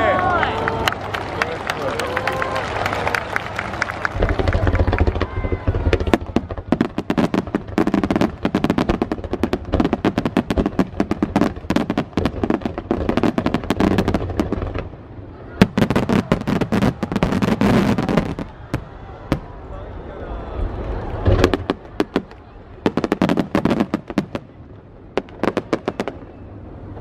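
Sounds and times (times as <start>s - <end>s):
fireworks bursting: 4.0s - 19.6s, 21.0s - 26.6s.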